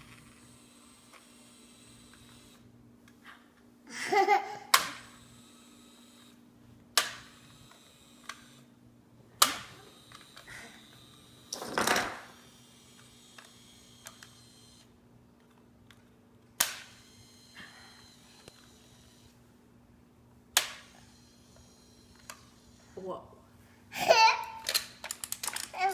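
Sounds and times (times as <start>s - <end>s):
toy trains clacking together: 24.4s - 25.9s.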